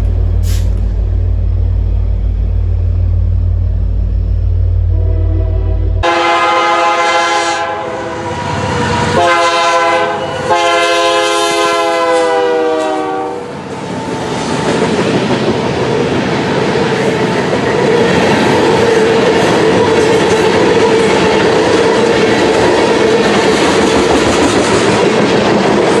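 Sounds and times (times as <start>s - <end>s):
faint steady whine: 0.0s - 6.0s
train passing wheel and rail noise: 0.0s - 26.0s
locomotive air horn blasts: 4.8s - 13.5s.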